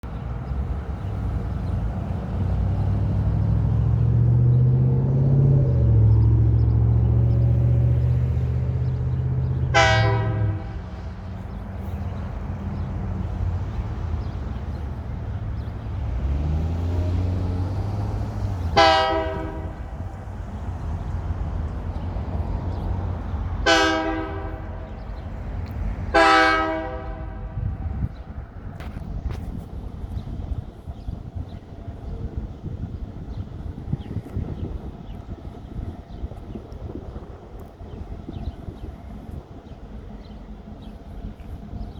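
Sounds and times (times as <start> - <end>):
diesel locomotive drone: 0.0 - 41.9
train rumbling: 0.0 - 41.9
locomotive horn blast: 9.6 - 11.5, 18.7 - 20.3, 23.6 - 25.4, 26.1 - 28.0.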